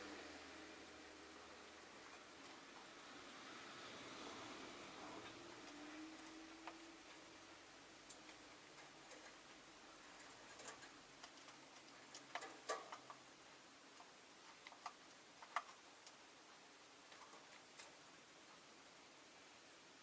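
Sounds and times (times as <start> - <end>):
birds clicking and tapping: 5.0 - 18.7.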